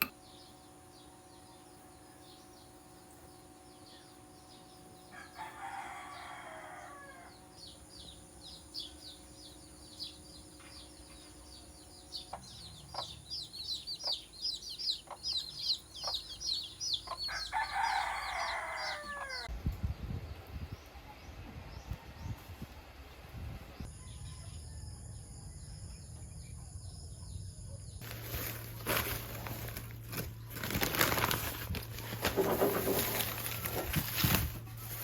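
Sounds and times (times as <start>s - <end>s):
small birds chirping: 0.0s - 22.5s
rooster crowing: 5.1s - 7.7s, 17.1s - 19.5s, 23.9s - 25.5s.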